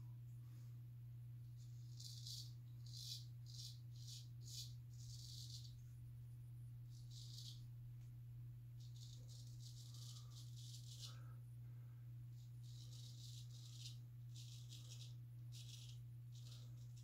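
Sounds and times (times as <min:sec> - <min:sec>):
razor scraping stubble: 0:01.6 - 0:05.8, 0:06.9 - 0:07.7, 0:08.8 - 0:11.4, 0:12.4 - 0:17.0.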